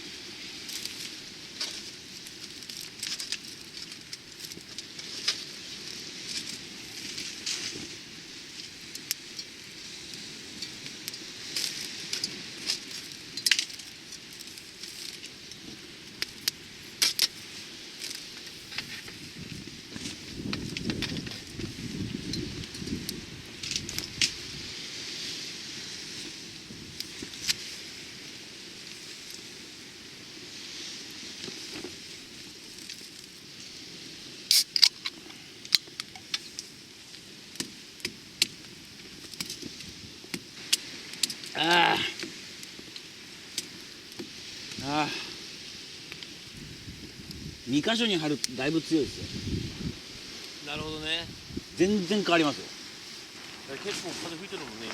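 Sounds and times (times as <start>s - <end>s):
faint steady hiss: 0.0s - 54.9s
wind rushing: 48.8s - 54.9s.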